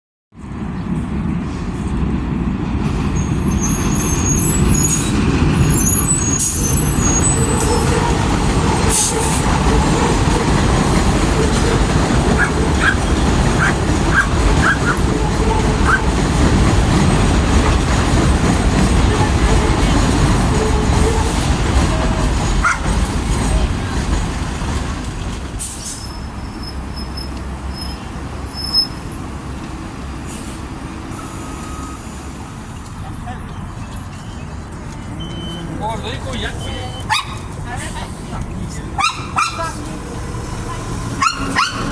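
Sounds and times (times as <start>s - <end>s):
bus engine rumbling: 0.4s - 41.9s
brakes squealing: 3.2s - 16.1s, 25.6s - 41.9s
air-brake hisses: 25.6s - 27.4s, 30.2s - 32.4s.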